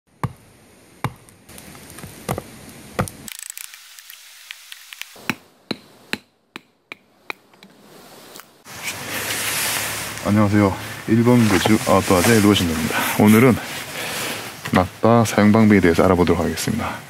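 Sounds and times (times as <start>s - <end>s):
hatchet chopping firewood: 0.1s - 0.4s, 1.0s - 3.3s, 5.0s - 7.7s
small clicks: 3.3s - 5.2s.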